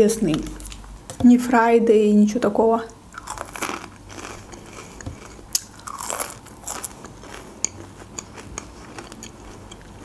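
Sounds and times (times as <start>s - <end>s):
french fries crunching: 3.1s - 10.0s.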